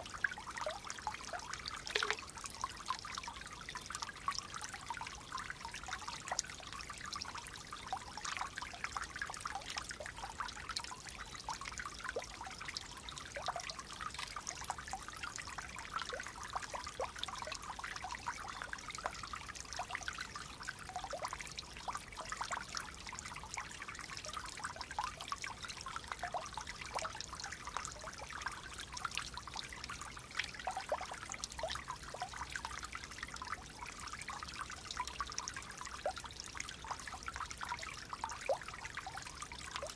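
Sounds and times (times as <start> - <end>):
water babbling in a shallow stream: 0.0 - 39.9.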